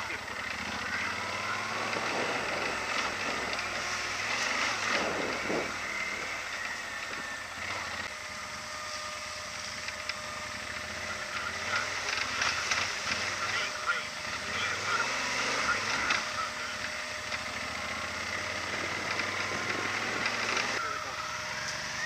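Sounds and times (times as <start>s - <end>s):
motorcycle engine running: 0.0s - 22.0s
wind noise on microphone: 4.9s - 6.3s.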